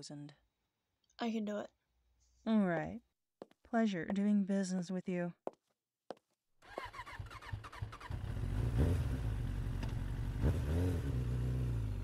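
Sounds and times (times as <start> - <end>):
engine starting and revving: 6.6 - 12.0.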